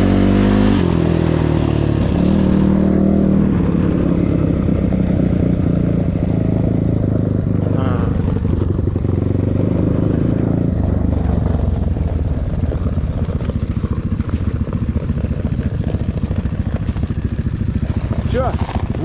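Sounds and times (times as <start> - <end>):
motorcycle engine chugging: 0.0 - 19.0.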